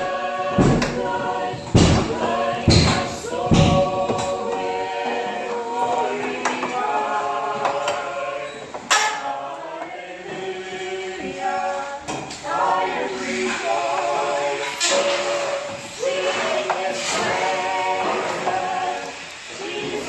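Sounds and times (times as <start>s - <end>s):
group singing a hymn a cappella: 0.0s - 20.0s
sharp knocks: 0.5s - 4.4s.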